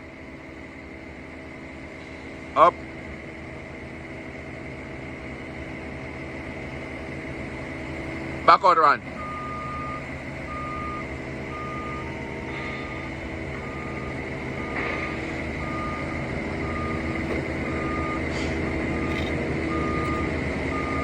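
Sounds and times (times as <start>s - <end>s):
forklift engine running: 0.0s - 21.0s
reversing alarm beeping: 9.0s - 21.0s.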